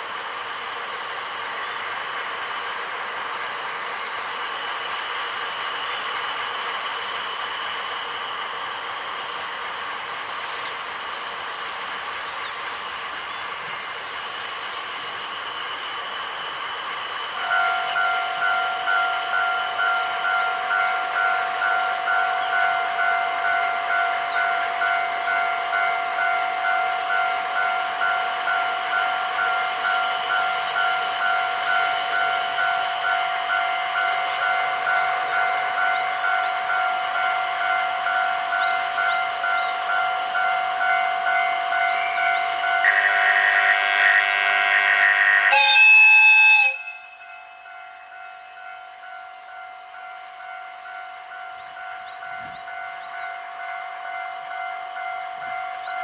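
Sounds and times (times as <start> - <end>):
level-crossing warning bell: 17.3 - 56.0
train horn: 17.4 - 52.6.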